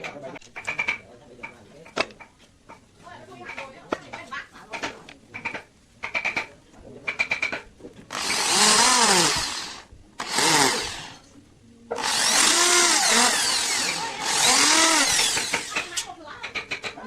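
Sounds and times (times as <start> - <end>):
electric drill running: 8.1 - 11.2, 12.0 - 16.1.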